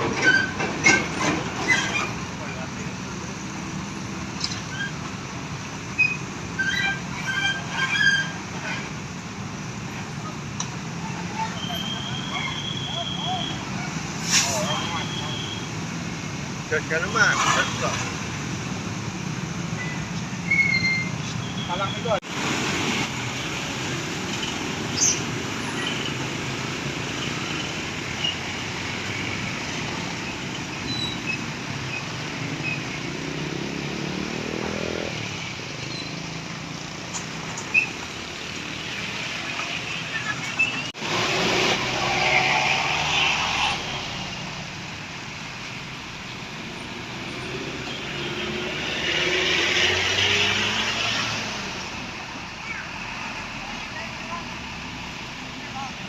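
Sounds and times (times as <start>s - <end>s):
tyre and road noise: 0.0s - 56.0s
engine revving up: 33.0s - 35.3s, 41.0s - 44.4s, 47.0s - 52.0s.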